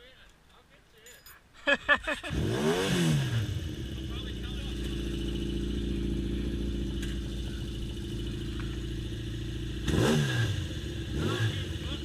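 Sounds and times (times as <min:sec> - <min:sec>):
motorcycle engine idling: 0:03.4 - 0:12.0.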